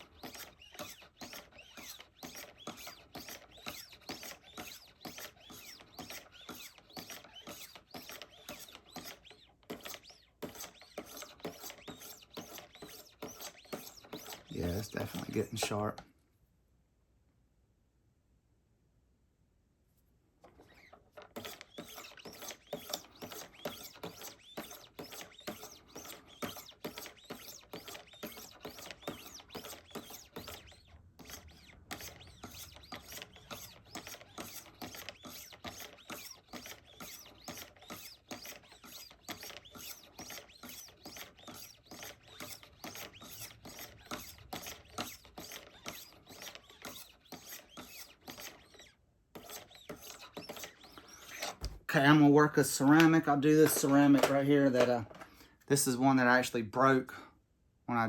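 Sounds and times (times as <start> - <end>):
sharpening stones rasping on knife blade: 21.4 - 48.8.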